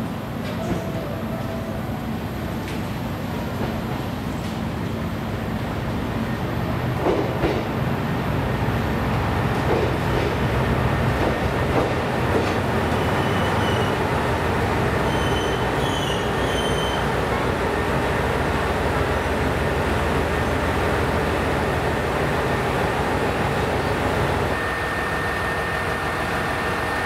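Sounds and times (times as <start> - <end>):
wheel and brake squeals: 13.0 - 14.0, 15.0 - 17.1.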